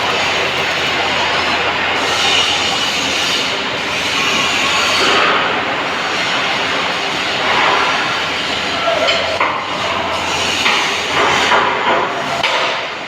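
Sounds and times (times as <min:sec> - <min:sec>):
welder arc crackling: 0:00.0 - 0:03.4.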